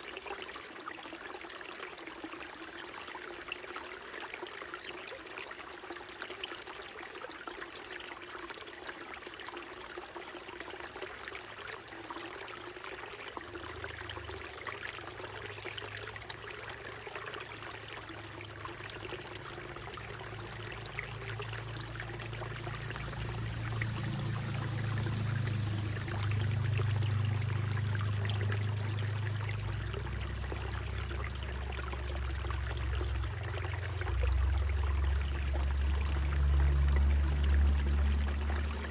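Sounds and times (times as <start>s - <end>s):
stream splashing over rocks: 0.0s - 38.9s
low rumble: 20.2s - 38.9s.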